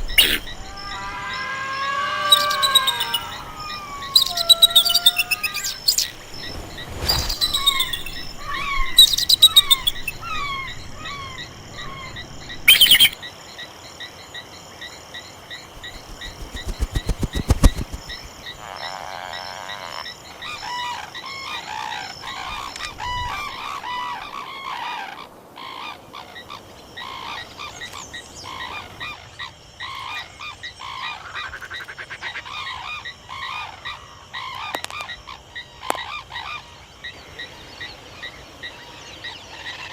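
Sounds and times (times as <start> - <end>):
frogs croaking: 0.0 - 6.8
birds calling: 0.0 - 13.2, 15.8 - 18.6
quick clicks: 15.8 - 18.5.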